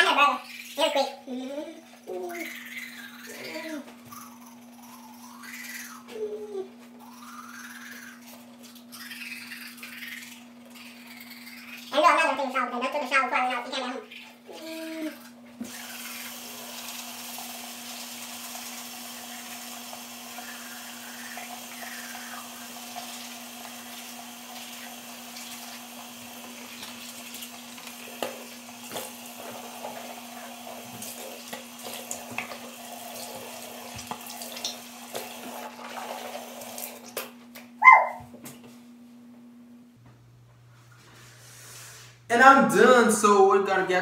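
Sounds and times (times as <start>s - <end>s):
tap water running into sink: 15.6s - 37.3s.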